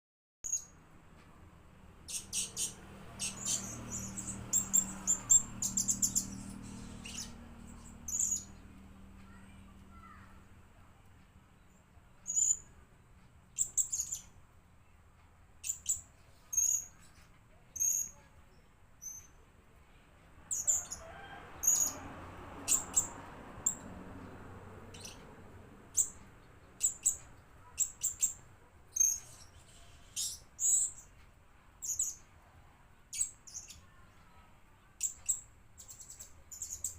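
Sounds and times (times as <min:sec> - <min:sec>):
parrot high-pitched chirps: 0:02.1 - 0:08.6, 0:12.2 - 0:12.7, 0:15.6 - 0:17.1, 0:20.5 - 0:22.0, 0:22.7 - 0:23.8, 0:26.8 - 0:31.1.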